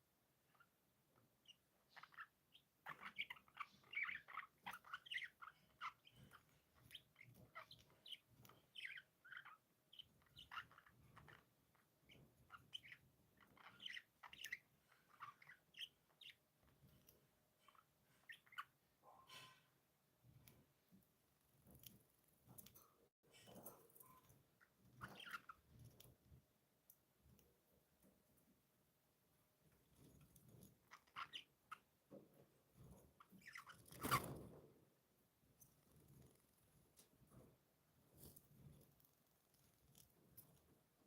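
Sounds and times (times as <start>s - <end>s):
budgerigars chirping and chattering: 1.4s - 16.4s, 17.6s - 18.8s, 24.6s - 25.7s, 30.8s - 31.9s, 33.2s - 34.4s.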